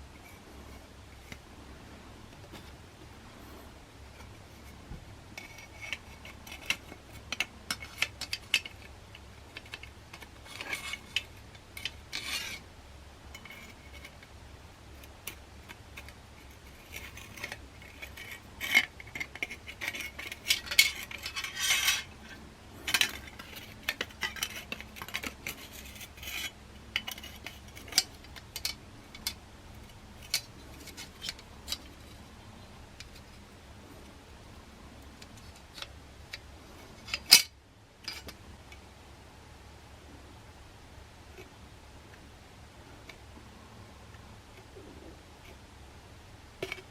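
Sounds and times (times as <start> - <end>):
metal parts clinking and scraping: 5.4 - 12.6, 15.0 - 32.3, 35.2 - 38.4.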